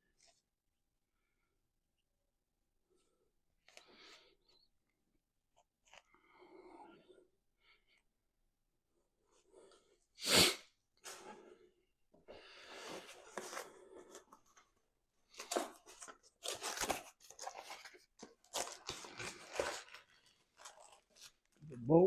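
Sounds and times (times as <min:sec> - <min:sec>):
material rustling and crinkling: 0:15.4 - 0:21.7.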